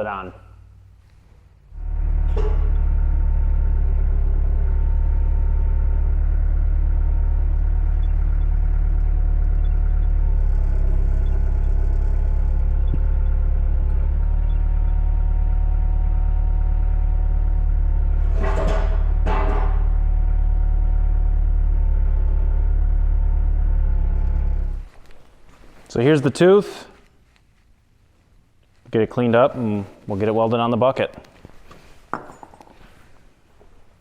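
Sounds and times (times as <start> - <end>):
excavator diesel engine running: 1.7 - 24.9.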